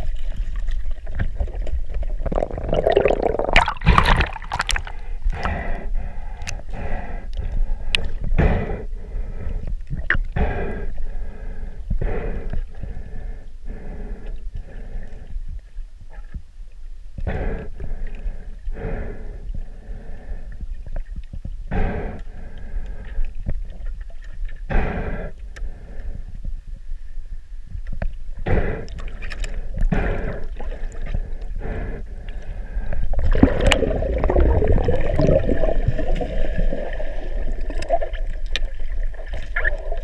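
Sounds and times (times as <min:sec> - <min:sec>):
swimmer breathing with bubbling: 0:00.0 - 0:11.0, 0:28.4 - 0:40.0
low steady rumble: 0:00.0 - 0:40.0.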